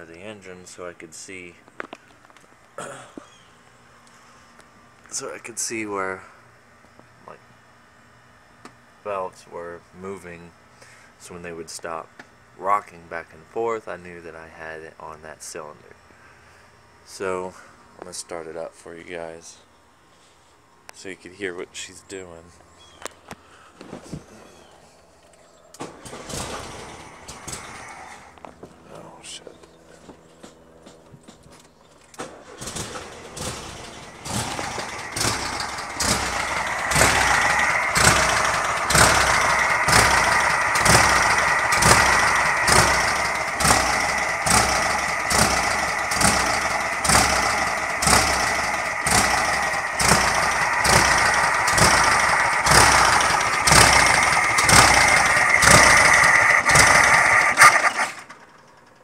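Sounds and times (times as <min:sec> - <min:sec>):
car engine running rough: 0:25.9 - 0:31.6, 0:32.2 - 0:59.0.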